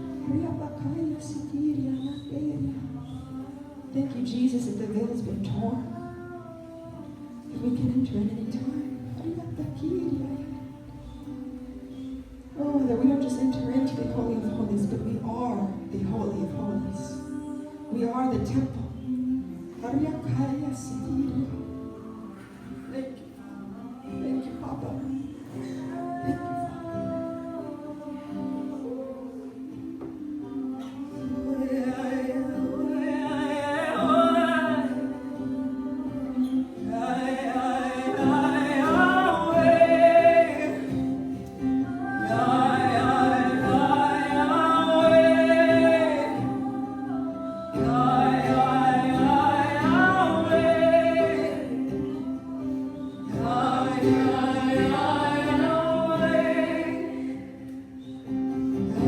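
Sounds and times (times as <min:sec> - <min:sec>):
person singing wordless phrases: 0:00.0 - 0:58.0.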